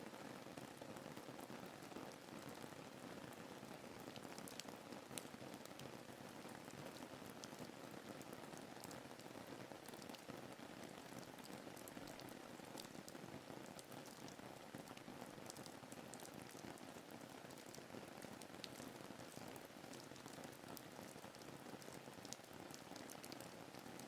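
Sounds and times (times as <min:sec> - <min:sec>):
raindrop ticks: 0:04.4 - 0:05.9, 0:15.5 - 0:16.6, 0:17.5 - 0:17.8, 0:18.6 - 0:19.4, 0:21.0 - 0:24.0.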